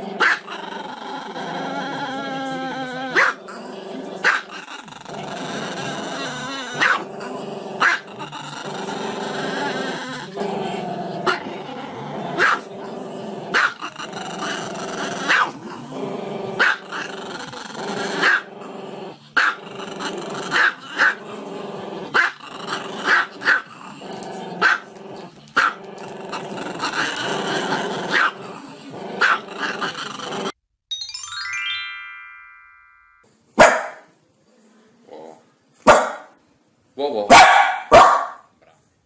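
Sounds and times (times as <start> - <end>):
dog growling: 0.0 - 30.6
dog barking: 0.2 - 0.4, 3.2 - 3.4, 6.8 - 7.0, 7.8 - 8.0, 12.4 - 12.7, 13.5 - 13.8, 15.3 - 15.6, 16.6 - 16.8, 18.2 - 18.5, 23.1 - 23.6, 24.6 - 24.8, 28.1 - 28.4, 29.2 - 29.4, 33.6 - 34.1, 35.8 - 36.3, 37.3 - 38.5.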